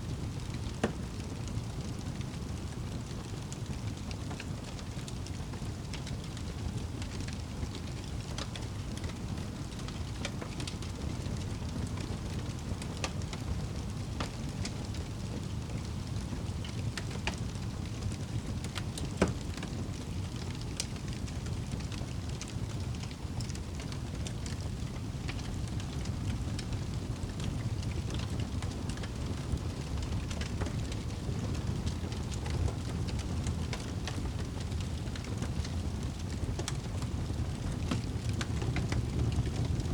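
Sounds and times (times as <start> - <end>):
fire crackles and snaps: 0.0 - 39.9
low rumble of flames: 0.0 - 39.9.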